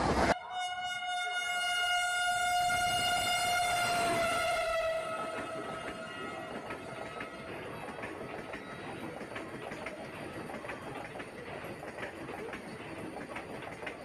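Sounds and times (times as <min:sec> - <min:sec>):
train horn: 0:00.3 - 0:08.8
train wheels clicking over rail joints: 0:02.9 - 0:14.0.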